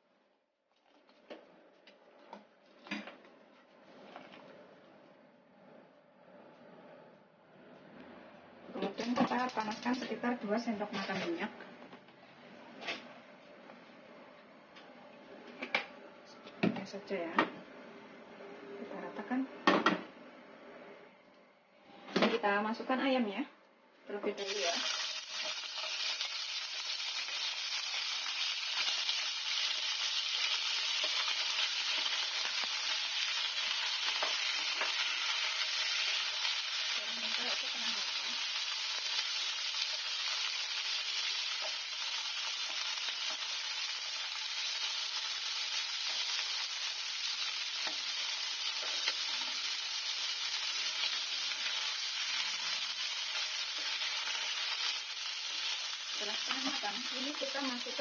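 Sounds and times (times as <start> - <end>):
chicken sizzling in hot oil: 9.0 - 10.2, 24.4 - 58.0.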